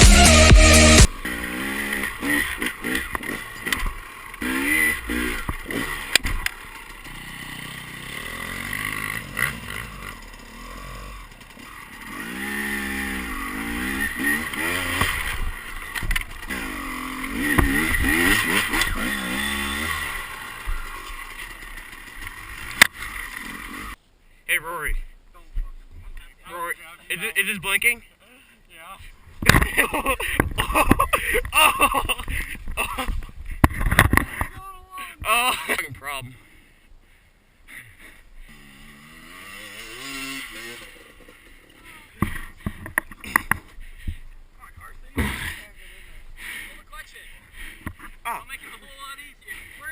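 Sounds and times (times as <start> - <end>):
music: 0.0 - 1.1
dirt bike engine revving: 0.0 - 24.0, 29.3 - 34.5, 37.7 - 44.2, 44.8 - 48.8.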